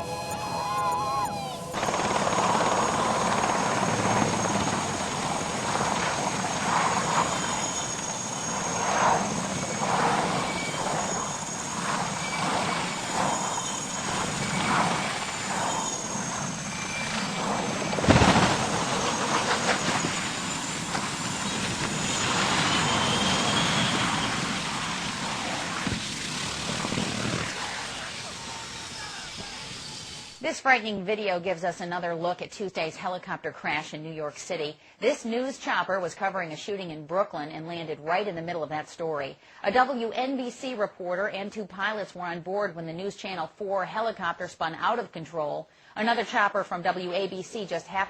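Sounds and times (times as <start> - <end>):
helicopter rotor and turbine: 0.0 - 30.4.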